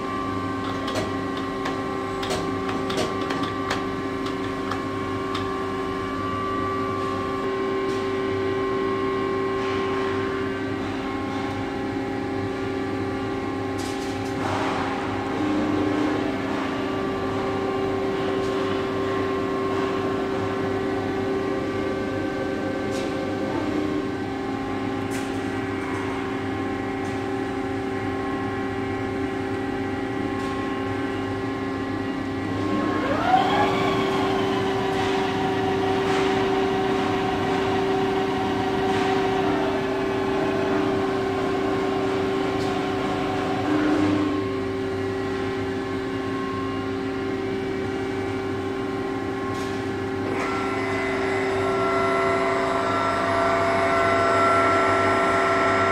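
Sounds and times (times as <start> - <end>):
lathe humming and whining: 0.0 - 55.9.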